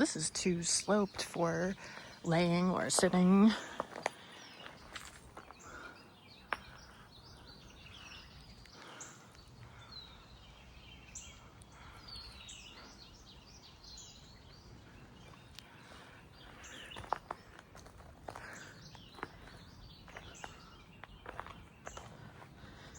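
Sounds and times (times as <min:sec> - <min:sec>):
birds chirping and singing: 0:00.0 - 0:22.9.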